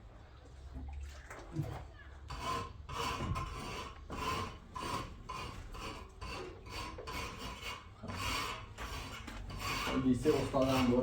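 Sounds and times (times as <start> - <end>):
hand tool rasping: 2.4 - 11.0.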